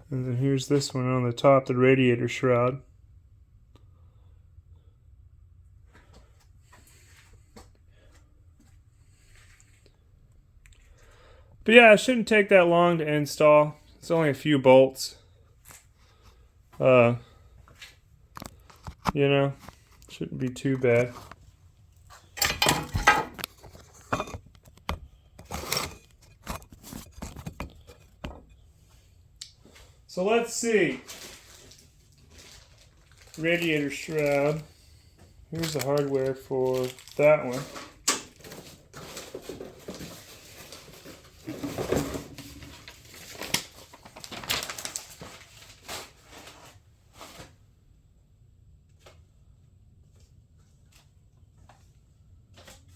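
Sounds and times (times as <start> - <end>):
packaging rustling: 30.6 - 34.7, 35.5 - 47.5.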